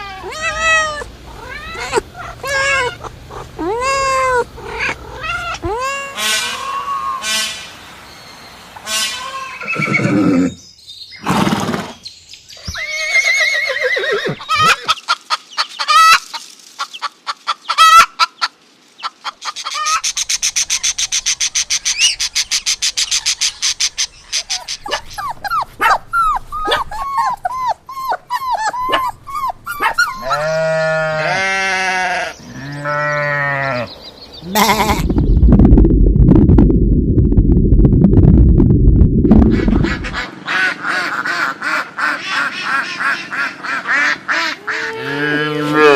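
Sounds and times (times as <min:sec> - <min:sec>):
animal calls: 0:00.0 - 0:07.7, 0:12.6 - 0:16.4, 0:19.2 - 0:35.2
goat or sheep bleating: 0:30.1 - 0:35.1.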